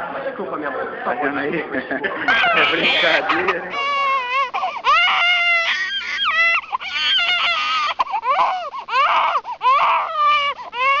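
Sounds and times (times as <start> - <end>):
baby crying: 2.3 - 11.0.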